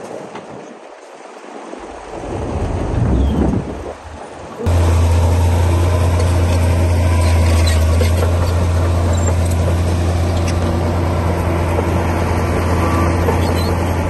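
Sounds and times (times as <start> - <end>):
bulldozer diesel engine droning: 4.6 - 14.0.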